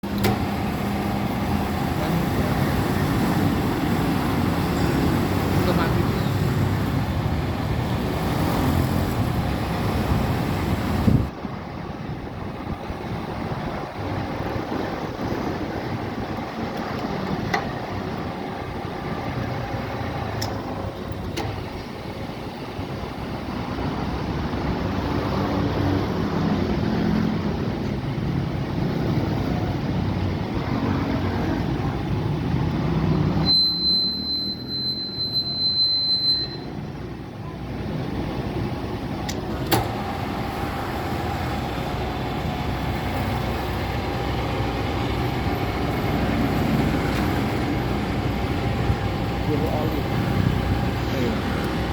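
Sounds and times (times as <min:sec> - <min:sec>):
high whine: 0:33.4 - 0:37.0.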